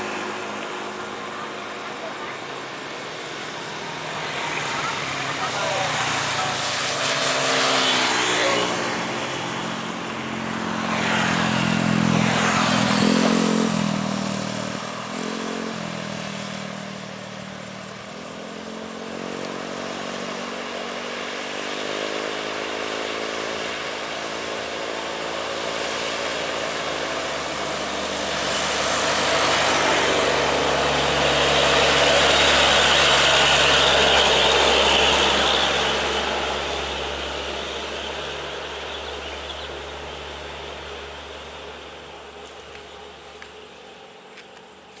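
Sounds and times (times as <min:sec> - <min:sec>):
heavy trucks passing: 0:25.8 - 0:45.0.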